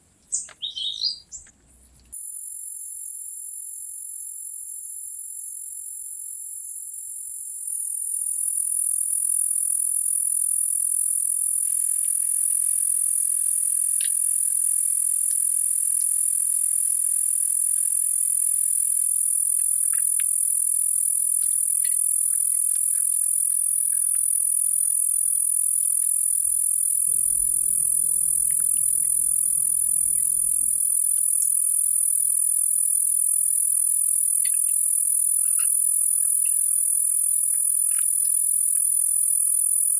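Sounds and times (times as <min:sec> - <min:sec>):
high-pitched insect chorus: 0:07.2 - 0:39.9
low rumble: 0:26.5 - 0:30.8.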